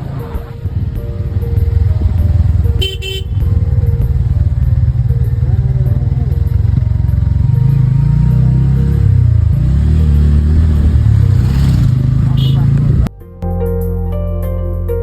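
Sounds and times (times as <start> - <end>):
motorcycle engine running: 0.0 - 13.1
short horn toot: 2.7 - 3.6, 12.2 - 13.0.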